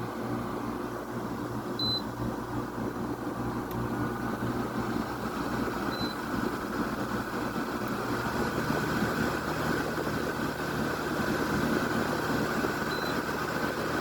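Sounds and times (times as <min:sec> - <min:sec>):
air conditioner fan humming: 0:00.0 - 0:14.0.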